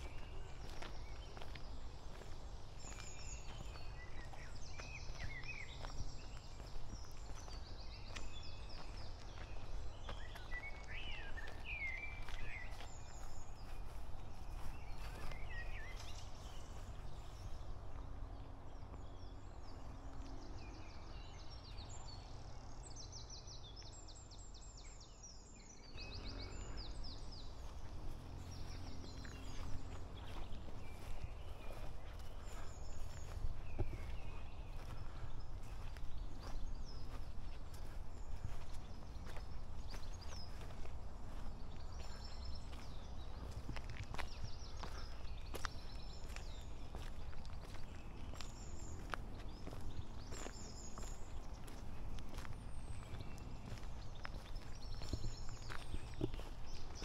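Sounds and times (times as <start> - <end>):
birds singing and chirping: 0.0 - 57.0
steady low rumble: 25.9 - 57.0.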